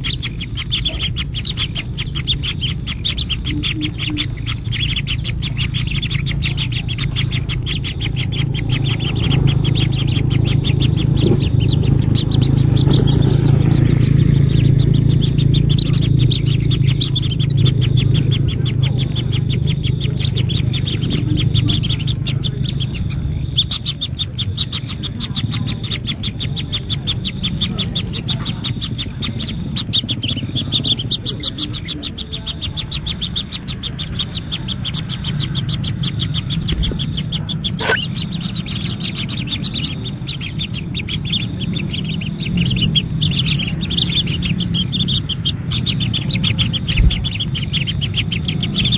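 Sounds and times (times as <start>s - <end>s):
birds chirping: 0.0s - 48.9s
low hum: 0.0s - 48.9s
short rising bird call: 37.8s - 38.2s.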